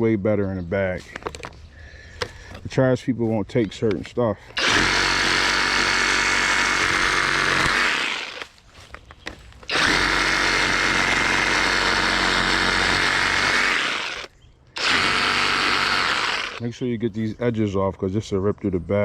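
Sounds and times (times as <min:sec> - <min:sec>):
reciprocating saw cutting branches: 0:04.4 - 0:08.6, 0:09.6 - 0:16.6.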